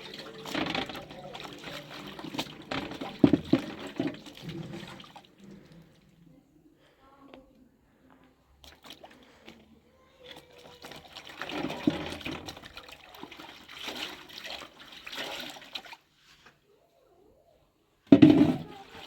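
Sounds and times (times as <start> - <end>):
water splashing and pouring: 0.0 - 6.0, 8.6 - 9.6, 10.2 - 16.1, 18.1 - 19.0
knocks: 18.1 - 18.7.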